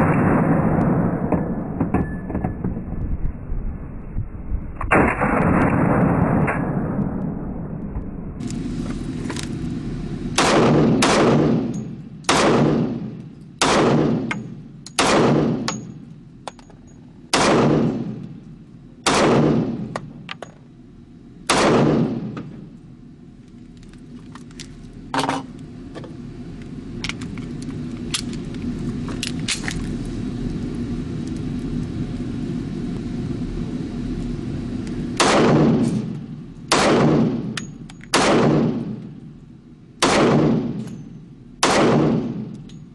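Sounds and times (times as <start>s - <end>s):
pistol shots with echo: 10.4s - 14.4s, 15.0s - 15.9s, 17.3s - 18.2s, 19.0s - 20.0s, 21.5s - 22.4s, 35.2s - 36.1s, 36.7s - 39.0s, 40.0s - 40.9s, 41.6s - 42.5s.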